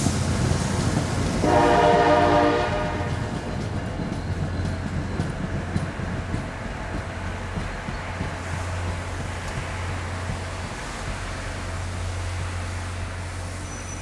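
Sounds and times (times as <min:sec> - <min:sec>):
train rumbling past: 0:00.0 - 0:14.0
locomotive air horn: 0:01.4 - 0:03.5.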